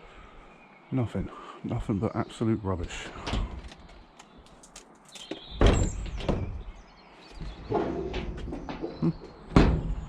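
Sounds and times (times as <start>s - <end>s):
small knocks and rustles: 3.4s - 10.0s
door shutting with heavy thud: 5.6s - 6.7s, 9.5s - 10.0s.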